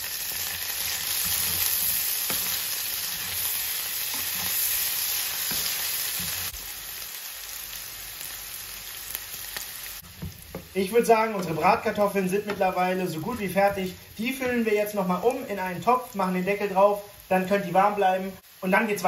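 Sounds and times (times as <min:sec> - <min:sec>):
potatoes sizzling in butter: 0:00.0 - 0:19.0
spatula scraping and tapping pan: 0:01.1 - 0:03.5.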